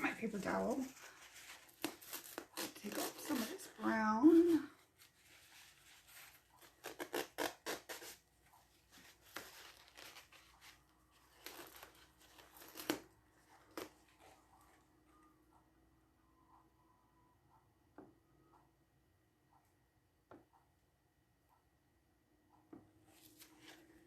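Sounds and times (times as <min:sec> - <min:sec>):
paper towel rustling and scraping: 0:00.0 - 0:08.2.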